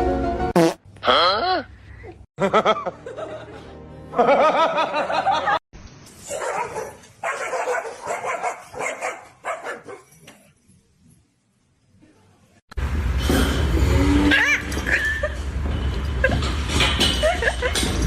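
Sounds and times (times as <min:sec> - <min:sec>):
dog barking and yipping: 0:06.2 - 0:10.2.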